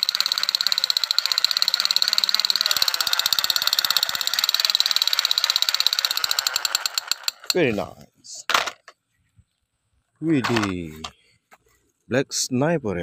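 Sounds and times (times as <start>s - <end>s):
toy gun machine-gun rattle: 0.0s - 7.6s, 10.4s - 10.8s.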